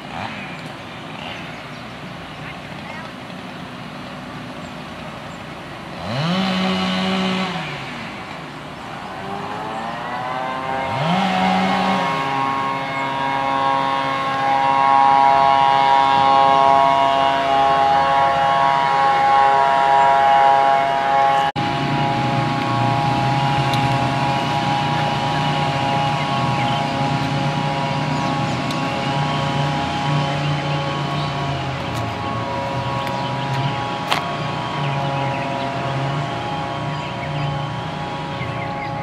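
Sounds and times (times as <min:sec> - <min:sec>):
chainsaw running at high revs: 0:00.0 - 0:01.4, 0:05.9 - 0:39.0
chainsaw revving: 0:00.0 - 0:01.6, 0:05.8 - 0:39.0.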